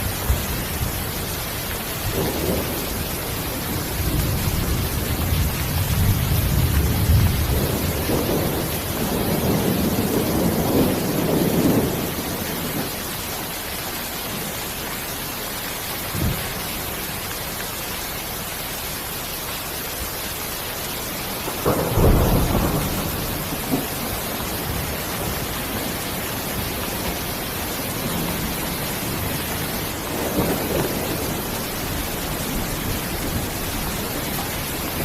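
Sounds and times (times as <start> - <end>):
thunder rumbling: 0.0 - 13.0, 21.3 - 35.0
heavy rain hissing: 0.0 - 35.0.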